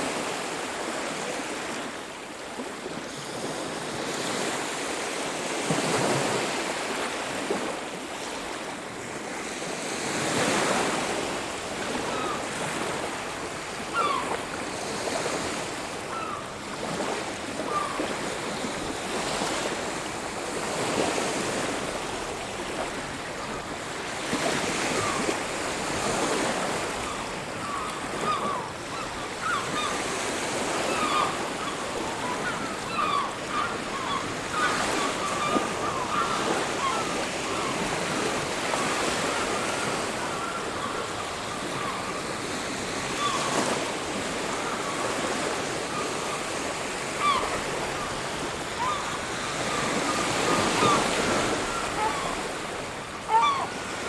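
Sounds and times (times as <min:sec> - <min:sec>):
waves breaking on a beach: 0:00.0 - 0:54.0
chirping bird calls: 0:27.1 - 0:37.9, 0:53.3 - 0:53.8.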